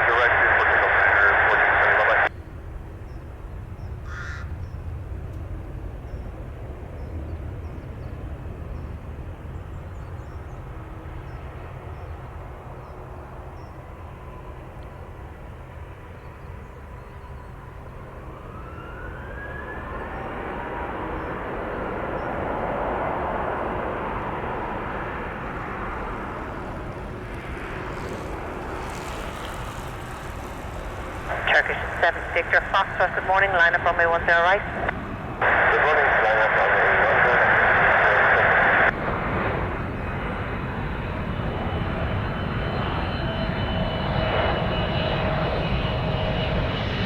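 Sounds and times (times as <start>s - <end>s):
jet engine rumble: 0.0s - 47.0s
jet engine whine rising: 17.5s - 47.0s.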